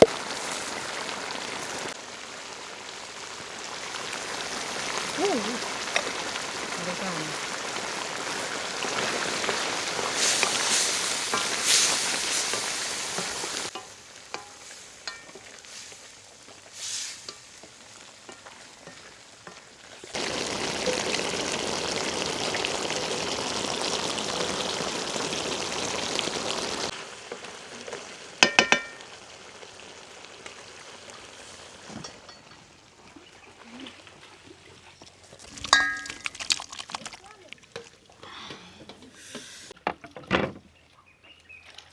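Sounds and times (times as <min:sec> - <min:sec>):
food sizzling in a pan: 0:00.0 - 0:32.7.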